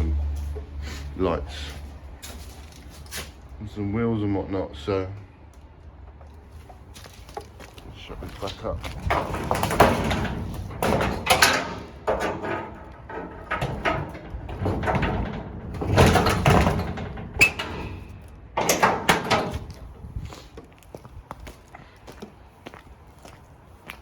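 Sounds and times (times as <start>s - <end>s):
doors scraping and rattling: 6.4s - 23.4s
door clunks: 8.8s - 20.2s.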